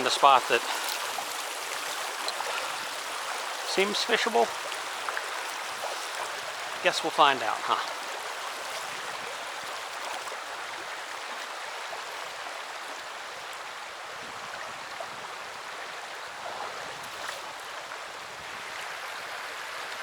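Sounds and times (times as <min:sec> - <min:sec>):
river flowing over rocks: 0:00.0 - 0:20.0.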